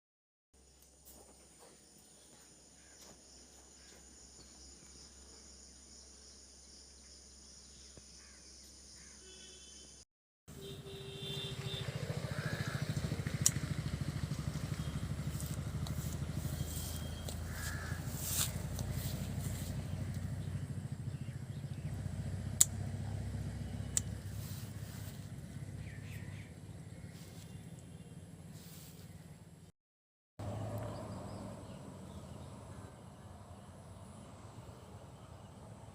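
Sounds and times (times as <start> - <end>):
crows cawing: 8.2 - 9.2, 12.2 - 13.1, 17.0 - 18.7.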